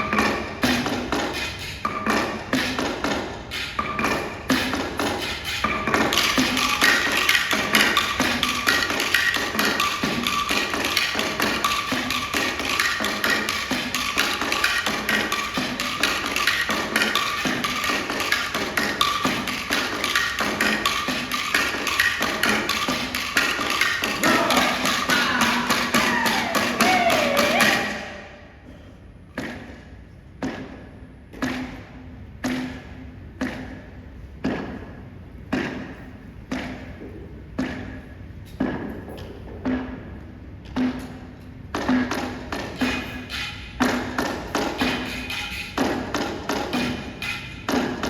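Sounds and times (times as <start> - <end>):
percussion ensemble wooden strokes: 0.0 - 28.7, 39.6 - 48.0.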